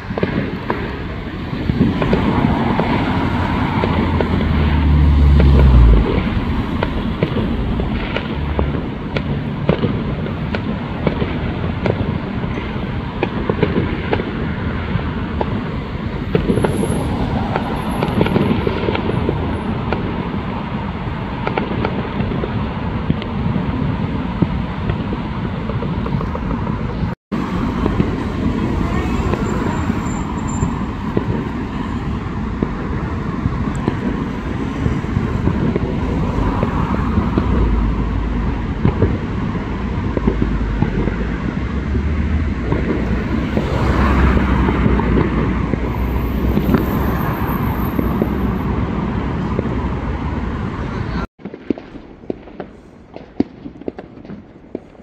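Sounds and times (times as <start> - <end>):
fireworks bangs and crackles: 0.0 - 55.0
low rumble: 1.8 - 10.2.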